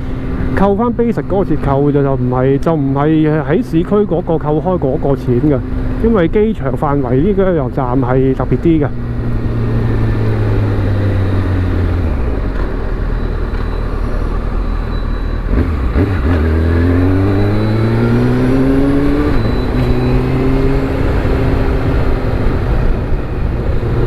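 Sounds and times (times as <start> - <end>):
motorcycle engine accelerating: 8.9 - 24.0.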